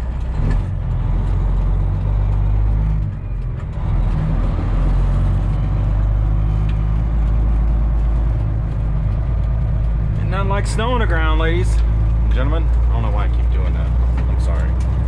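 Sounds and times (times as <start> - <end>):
truck diesel engine running: 0.0 - 15.0.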